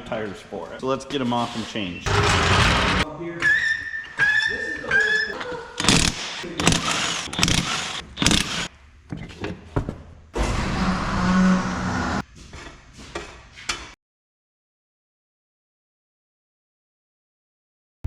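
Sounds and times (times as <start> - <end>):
impact wrench running: 1.5 - 3.0, 5.8 - 8.7.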